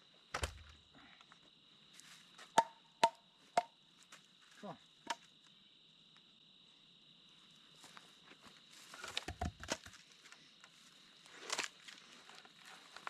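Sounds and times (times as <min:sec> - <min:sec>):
footsteps crunching dry twigs: 0:11.2 - 0:13.0.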